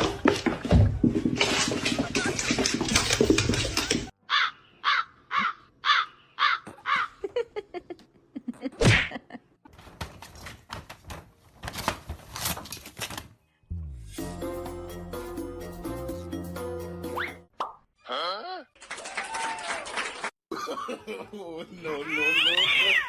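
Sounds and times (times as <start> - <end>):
music: 13.7 - 17.5.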